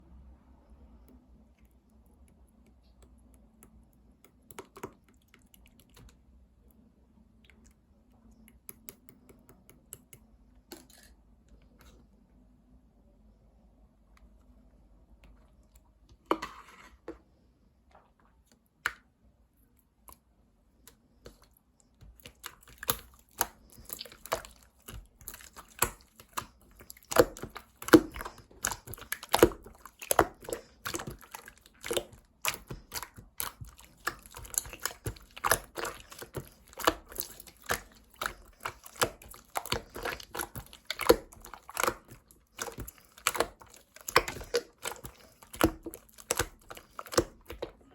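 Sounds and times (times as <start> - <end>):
slime squeezed and stretched: 22.2 - 47.7.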